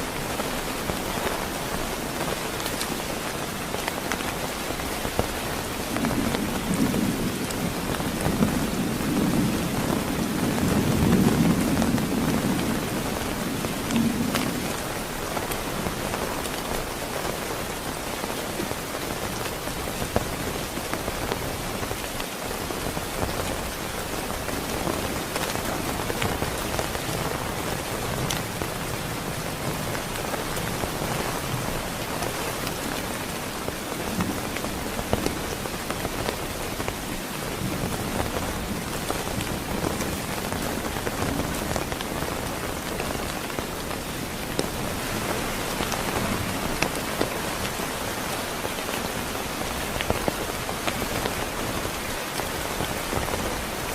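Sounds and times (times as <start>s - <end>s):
heavy rain falling: 0.0s - 53.9s
sharp raindrop taps: 24.4s - 28.8s, 37.8s - 47.8s.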